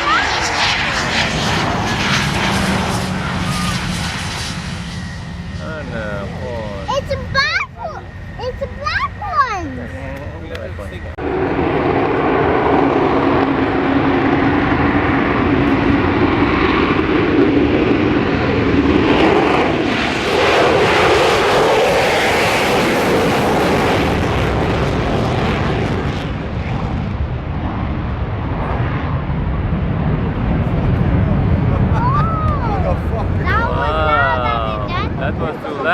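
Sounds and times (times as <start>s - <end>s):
airplane flying past: 0.0s - 35.9s.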